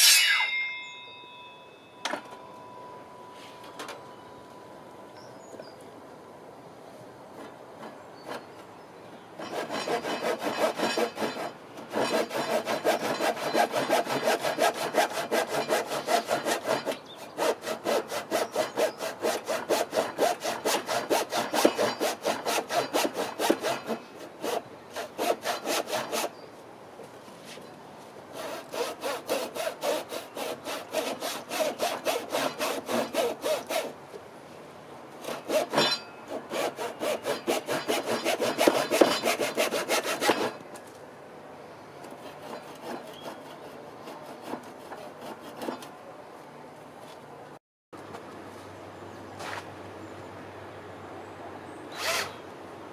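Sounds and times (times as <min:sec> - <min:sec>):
hand saw cutting wood: 0:00.0 - 0:00.5, 0:09.4 - 0:26.4, 0:28.3 - 0:34.0, 0:35.2 - 0:40.7, 0:42.0 - 0:45.9, 0:51.9 - 0:52.4.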